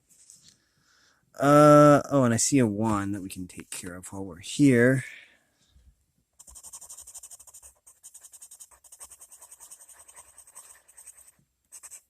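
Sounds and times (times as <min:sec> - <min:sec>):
pencil scratching on paper: 0:06.4 - 0:12.0.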